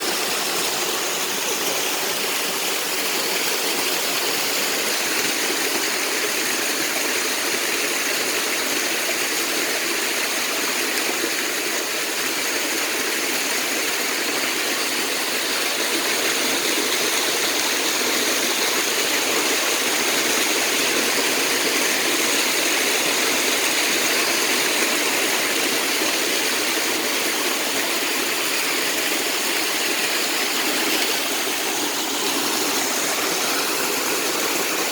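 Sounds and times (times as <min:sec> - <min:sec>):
flowing water rushing: 0:00.0 - 0:34.9.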